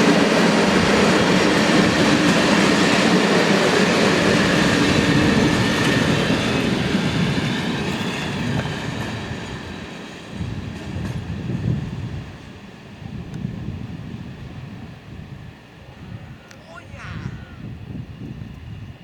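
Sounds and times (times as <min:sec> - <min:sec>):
train running on rails: 0:00.0 - 0:19.0.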